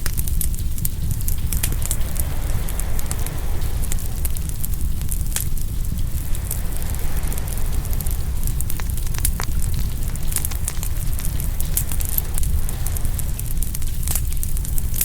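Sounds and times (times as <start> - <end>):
ocean waves rumbling: 0.0 - 15.0
wood fire crackling and popping: 0.0 - 15.0.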